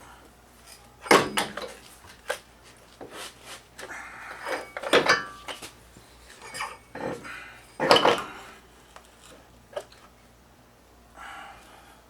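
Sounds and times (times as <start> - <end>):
metal tools clinking: 4.4 - 5.7, 6.3 - 8.6.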